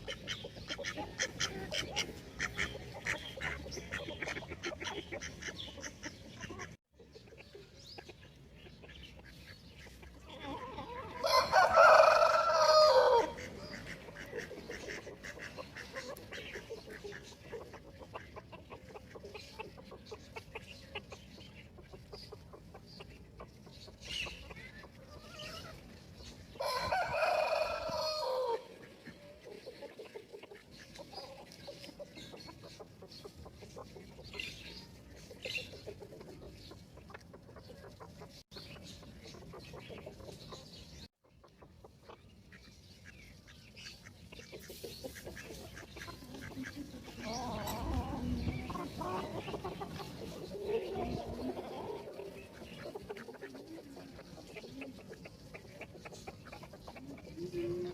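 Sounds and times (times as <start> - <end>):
chickens clucking: 0.0 - 57.9
rooster crowing: 11.2 - 13.4, 26.6 - 28.7.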